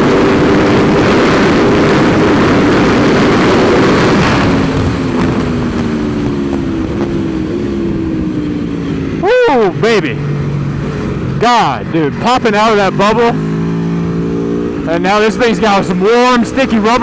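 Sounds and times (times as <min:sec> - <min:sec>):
wind noise: 0:00.0 - 0:09.3
motorcycle engine at high revs: 0:00.0 - 0:17.0.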